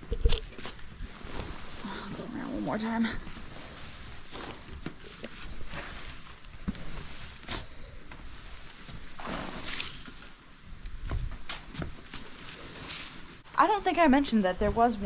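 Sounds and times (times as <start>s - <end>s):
hay rustling: 0.7s - 10.7s.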